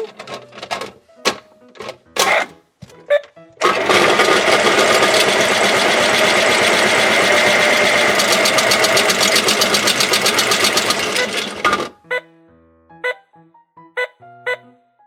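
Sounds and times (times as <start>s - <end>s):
fast regular clicking: 3.6s - 11.9s
toy washing machine drum whirring: 3.6s - 12.0s.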